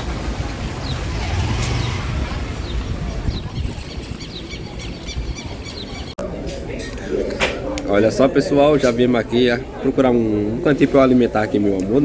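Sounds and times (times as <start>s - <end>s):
road and wind noise: 0.0s - 6.7s
motorcycle engine running: 0.1s - 3.6s.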